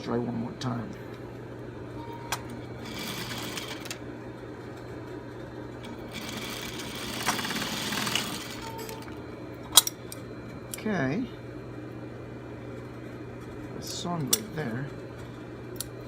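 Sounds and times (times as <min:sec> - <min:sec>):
sewing machine stitching: 0:02.8 - 0:04.0, 0:05.8 - 0:09.1.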